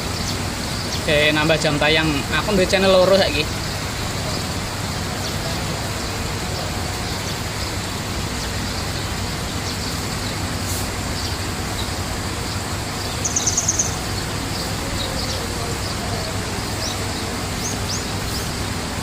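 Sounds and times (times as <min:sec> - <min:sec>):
small birds chirping: 0:00.0 - 0:19.0
steady rushing noise: 0:00.0 - 0:19.0
bird trill: 0:11.1 - 0:18.9.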